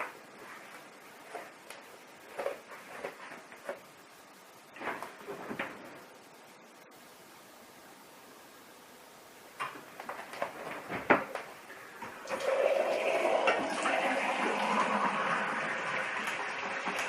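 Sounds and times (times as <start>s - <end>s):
water running: 9.5s - 17.0s.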